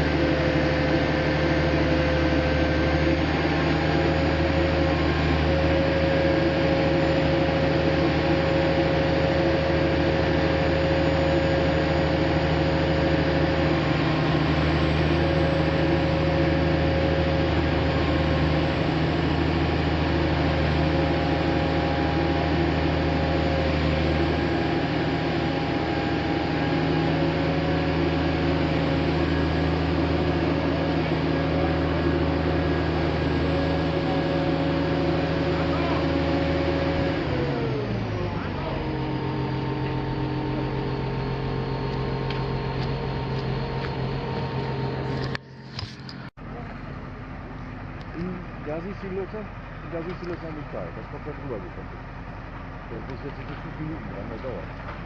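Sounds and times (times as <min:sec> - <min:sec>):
heavy diesel engine droning: 0:00.0 - 0:55.0.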